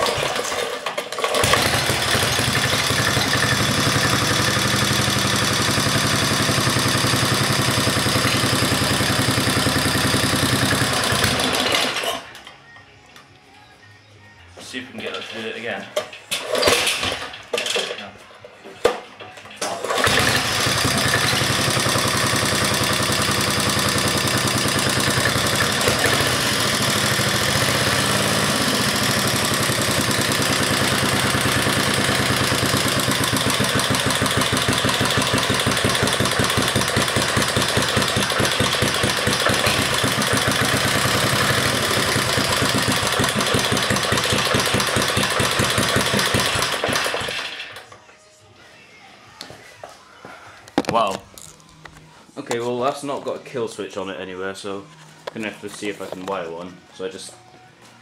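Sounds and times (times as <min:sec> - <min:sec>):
single-cylinder engine running: 0:00.0 - 0:12.3, 0:19.6 - 0:47.9.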